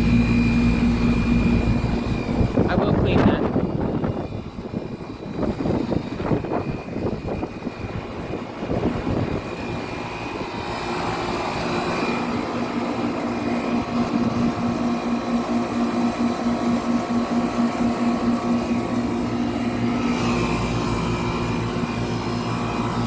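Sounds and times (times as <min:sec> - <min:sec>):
wind rumbling on microphone: 0:00.0 - 0:15.2
air conditioner unit humming: 0:00.0 - 0:23.0.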